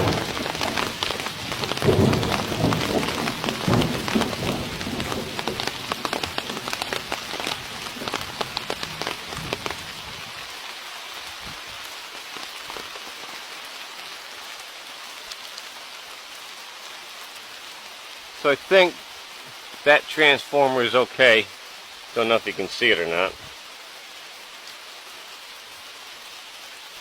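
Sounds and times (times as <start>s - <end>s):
sharp raindrop ticks: 0.0s - 16.3s
heavy rain falling: 0.0s - 27.0s.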